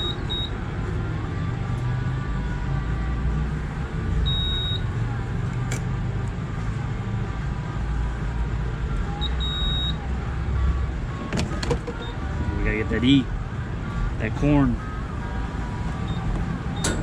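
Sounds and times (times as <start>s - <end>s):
short electronic beeps: 0.0s - 0.6s, 4.3s - 4.9s, 9.2s - 10.0s
car engine idling: 11.1s - 17.0s.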